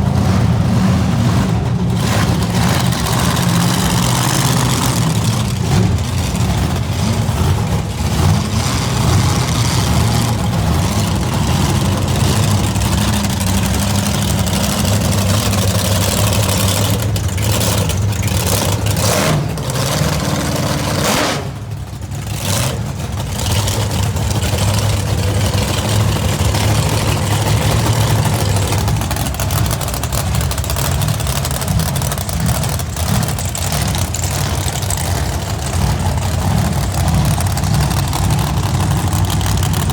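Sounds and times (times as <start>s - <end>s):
monster truck engine running: 0.0s - 39.9s.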